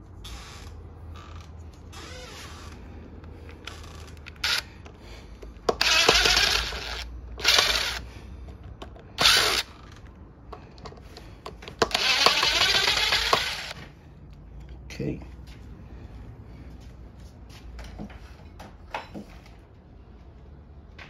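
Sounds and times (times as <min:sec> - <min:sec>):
power drill-driver bursts: 0:04.3 - 0:04.7, 0:05.7 - 0:08.1, 0:09.2 - 0:10.0, 0:11.8 - 0:13.8.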